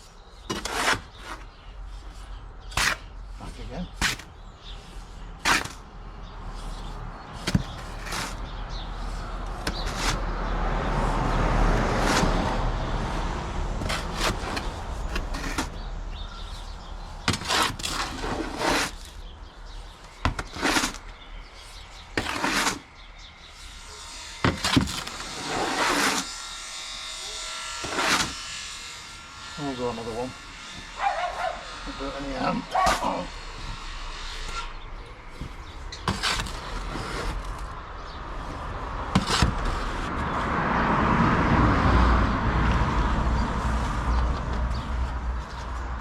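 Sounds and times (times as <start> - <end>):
shovel scraping cement mix in metal: 0.3 - 10.3, 11.8 - 12.6, 13.8 - 16.6, 17.2 - 23.6, 24.3 - 26.4, 27.2 - 28.8, 31.0 - 37.8, 38.5 - 40.1.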